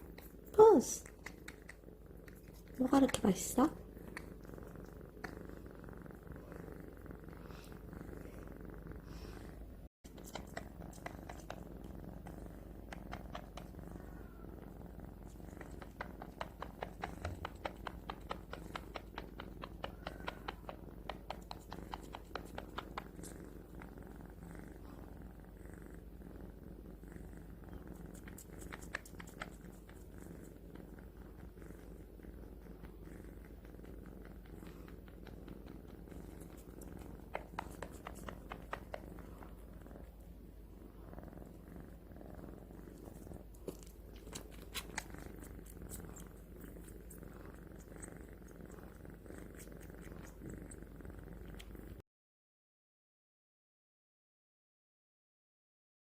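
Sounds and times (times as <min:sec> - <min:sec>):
wet sucking clicks: 0:00.0 - 0:05.4, 0:10.0 - 0:13.7, 0:28.0 - 0:30.0, 0:34.6 - 0:39.6, 0:42.9 - 0:50.8
kitten purring: 0:00.0 - 0:52.0.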